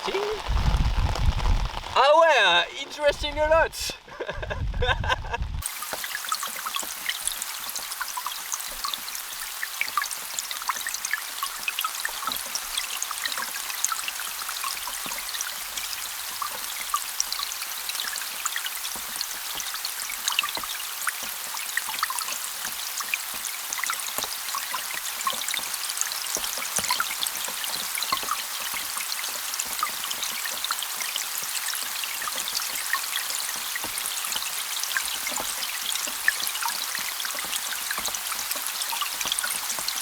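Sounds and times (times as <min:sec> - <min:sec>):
underwater rain hiss: 0:00.0 - 0:04.0, 0:05.6 - 0:40.0
tiny pings of raindrops: 0:05.6 - 0:40.0.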